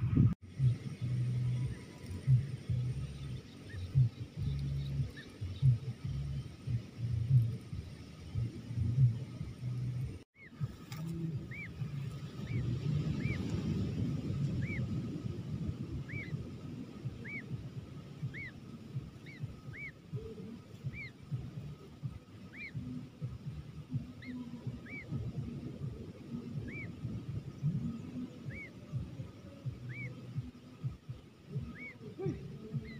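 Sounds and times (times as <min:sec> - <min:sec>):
low crackling rumble: 0:00.0 - 0:32.9
bird calling: 0:01.4 - 0:07.6, 0:10.4 - 0:13.5, 0:14.6 - 0:14.9, 0:16.0 - 0:16.4, 0:17.0 - 0:17.6, 0:18.2 - 0:32.9.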